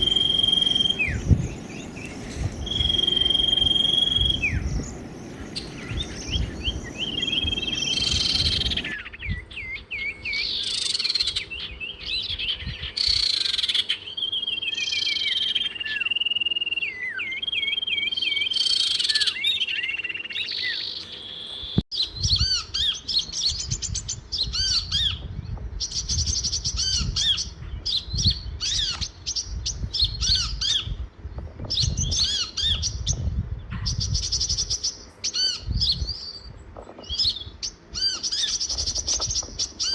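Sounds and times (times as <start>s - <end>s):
rapid chirping birds: 0.0s - 39.9s
songbirds singing: 0.0s - 39.9s.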